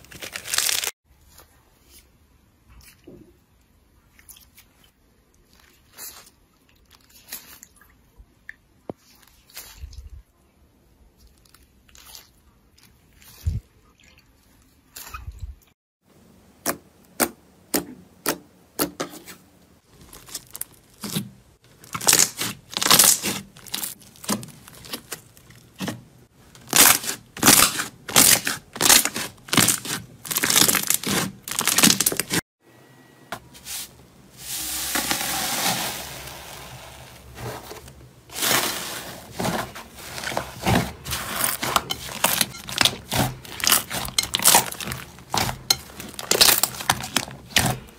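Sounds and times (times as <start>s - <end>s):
slime crackling and popping: 21.8s - 25.8s, 26.6s - 32.4s, 41.3s - 47.8s.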